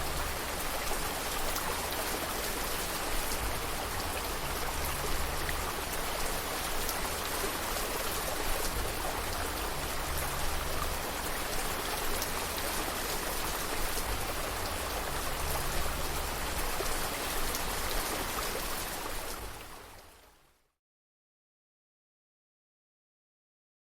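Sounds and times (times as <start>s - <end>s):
steady rain falling: 0.0s - 20.6s.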